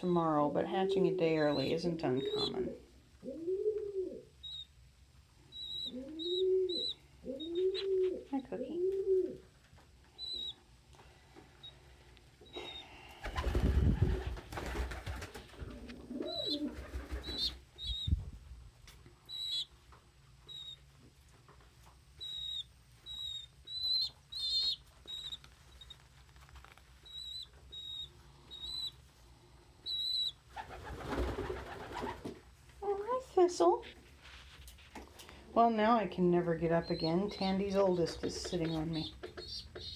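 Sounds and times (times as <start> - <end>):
pigeons peeping: 0.6 - 10.8, 11.5 - 18.2, 18.9 - 32.4, 35.0 - 39.9
pigeons cooing: 0.8 - 4.6, 5.6 - 9.4, 15.6 - 18.1
wings fluttering: 13.1 - 19.6, 22.2 - 28.9, 29.9 - 32.5.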